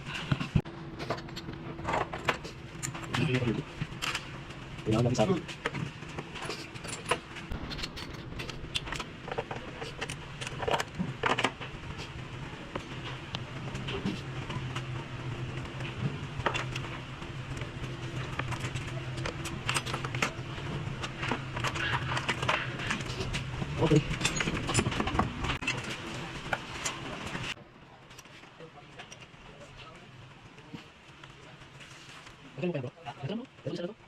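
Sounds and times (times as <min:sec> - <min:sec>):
steady low hum: 0:00.0 - 0:34.0
metal tools clinking and tapping: 0:23.9 - 0:25.3.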